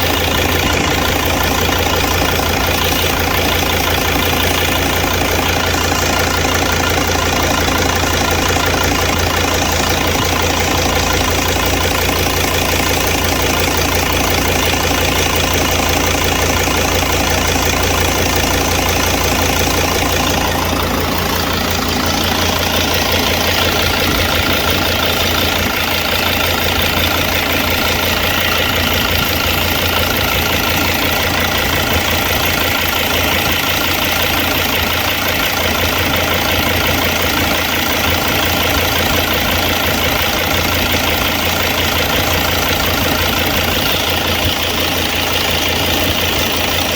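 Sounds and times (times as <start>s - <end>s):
engine belt running: 0.0s - 46.9s
van engine idling: 0.0s - 46.9s.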